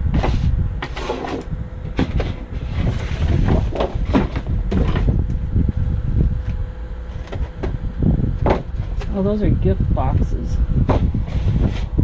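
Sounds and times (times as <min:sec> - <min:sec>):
steady low rumble: 0:00.0 - 0:12.0
rummaging through cardboard and trash: 0:00.1 - 0:05.2, 0:10.8 - 0:12.0.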